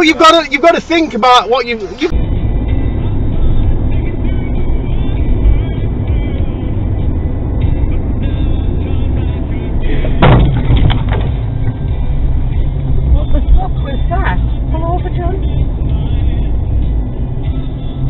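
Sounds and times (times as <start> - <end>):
car road and engine rumble: 0.0 - 18.0
sudden sharp bang: 10.1 - 11.8.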